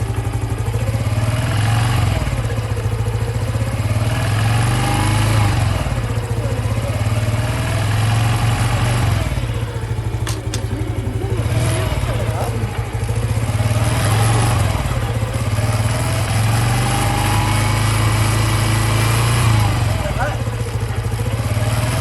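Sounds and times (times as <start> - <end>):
motorcycle engine revving: 0.0 - 22.0
sharp clicks: 9.8 - 13.2.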